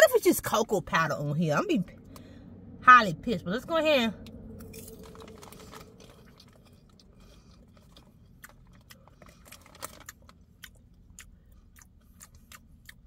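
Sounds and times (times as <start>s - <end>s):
person chewing popcorn: 4.6s - 13.0s.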